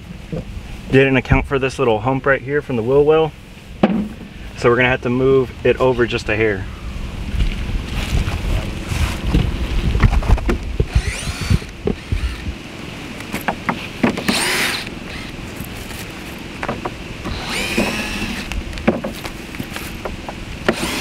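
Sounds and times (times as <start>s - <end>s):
wind rumbling on microphone: 0.0s - 21.0s
knocks and clatter of boards: 3.8s - 4.3s, 16.6s - 17.0s, 18.8s - 20.3s
cordless drill running: 10.9s - 12.5s, 14.2s - 15.4s, 17.2s - 18.6s, 20.7s - 21.0s.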